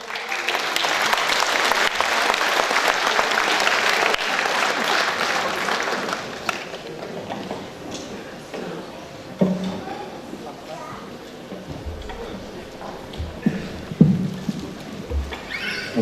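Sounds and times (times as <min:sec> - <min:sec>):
audience applauding: 0:00.0 - 0:07.3, 0:11.8 - 0:16.0.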